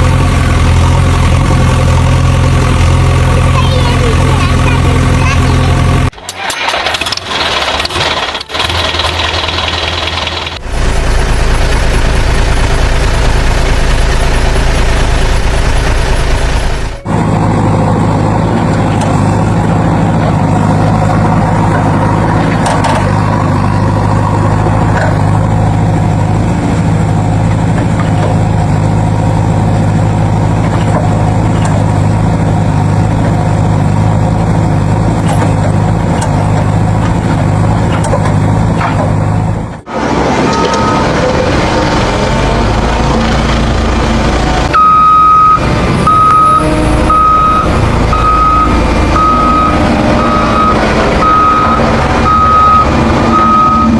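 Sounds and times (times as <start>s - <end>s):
heavy vehicle engine running: 0.0s - 53.9s.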